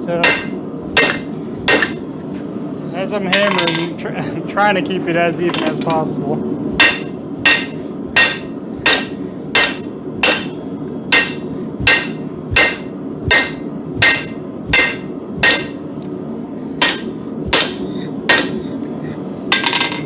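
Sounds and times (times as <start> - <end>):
hammer striking steel on anvil: 0.2 - 2.1, 6.8 - 15.9, 16.8 - 18.7, 19.5 - 20.0.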